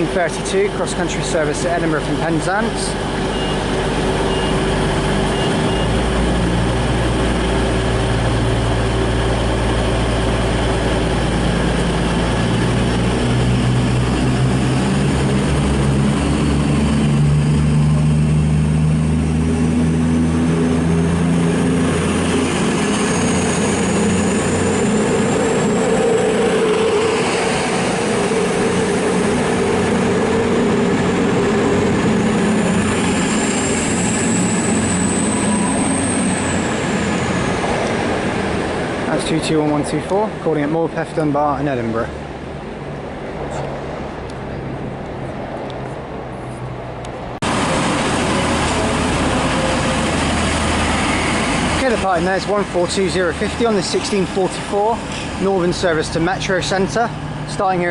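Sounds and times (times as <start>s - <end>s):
thin high whine: 0.0s - 38.7s
diesel train engines pulling away: 0.0s - 57.9s.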